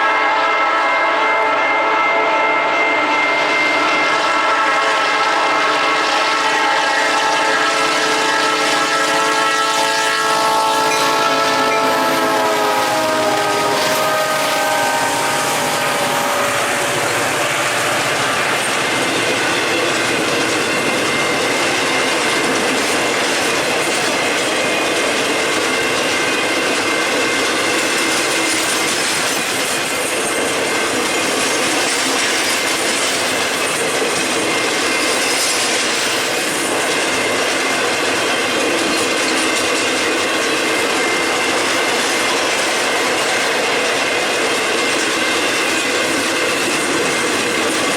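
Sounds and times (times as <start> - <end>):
locomotive horn: 0.0 - 18.9
high wheel squeal: 8.6 - 23.1
freight cars rumbling on rails: 8.6 - 47.9.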